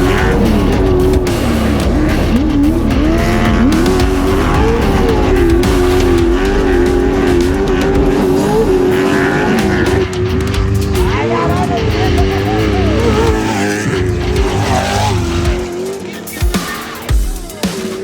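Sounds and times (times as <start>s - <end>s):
truck engine running hard: 0.0s - 16.4s.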